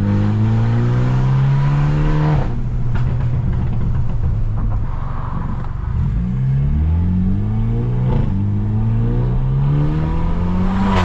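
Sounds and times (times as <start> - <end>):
car engine revving at full throttle: 0.0 - 2.8, 5.7 - 11.0.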